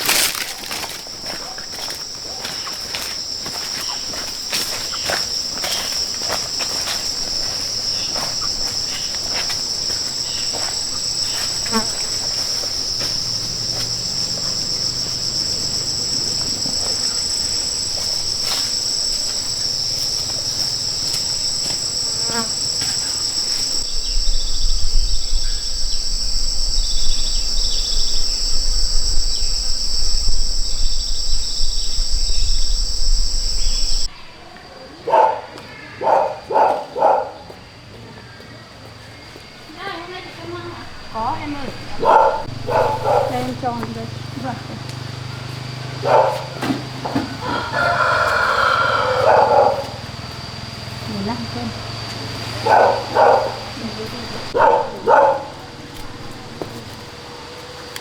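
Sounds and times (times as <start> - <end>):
insects chorus: 0.0 - 58.0
low rumble: 23.8 - 34.1.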